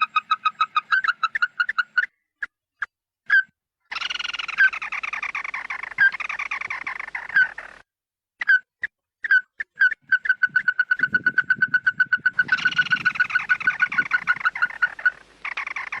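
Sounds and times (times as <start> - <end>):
bird flock chattering calls: 3.9 - 7.8, 10.1 - 16.0.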